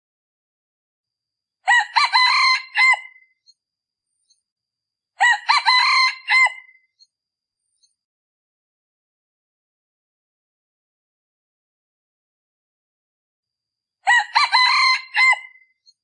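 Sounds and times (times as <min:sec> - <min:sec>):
rooster crowing: 0:01.6 - 0:03.2, 0:05.2 - 0:06.8, 0:14.0 - 0:15.6.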